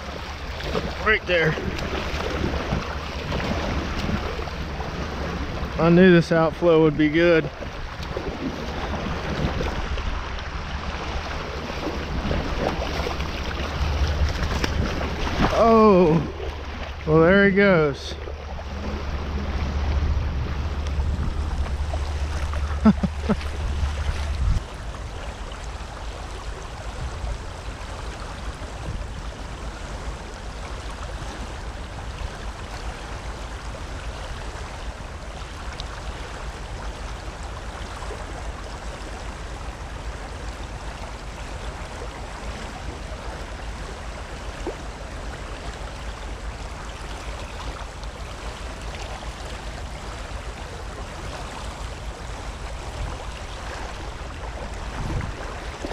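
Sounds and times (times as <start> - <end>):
water rushing from outflow: 0.0 - 55.9
low rumble: 18.1 - 25.9.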